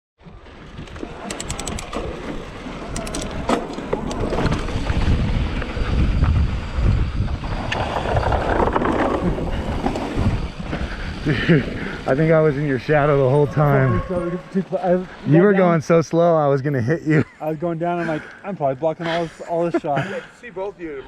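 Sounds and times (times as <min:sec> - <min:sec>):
wind buffeting the microphone: 0:00.3 - 0:14.3
sharp clicks: 0:00.9 - 0:02.1, 0:02.9 - 0:04.6.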